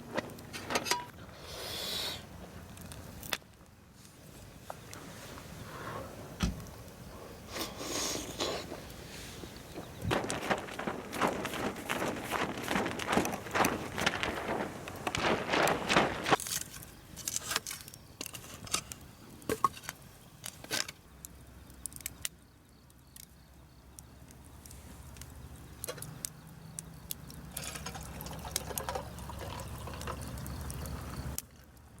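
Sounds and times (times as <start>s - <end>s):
liquid pouring and dripping: 27.8s - 30.8s.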